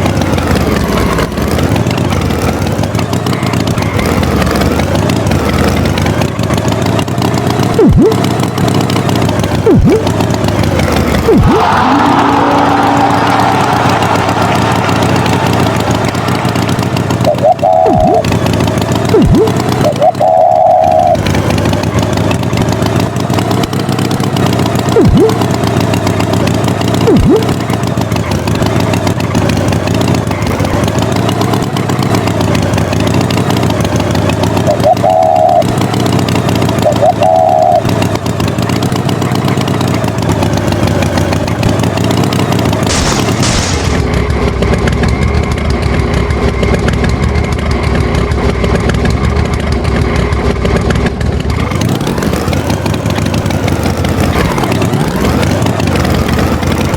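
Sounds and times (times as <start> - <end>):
tractor engine running: 0.0 - 56.9
quick falling glides: 7.7 - 8.2, 9.6 - 10.1, 10.7 - 18.3, 19.1 - 21.2, 25.0 - 25.4, 27.0 - 27.5
short beeps: 17.2 - 18.2, 19.2 - 21.2, 36.9 - 37.8.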